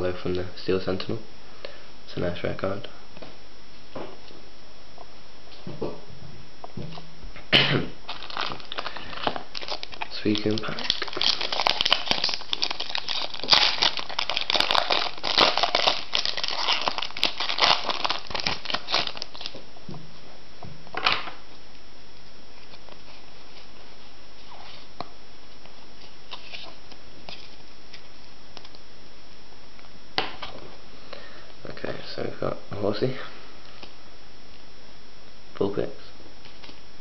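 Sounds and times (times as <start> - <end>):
foil wrapper tearing and crinkling: 8.1 - 19.6.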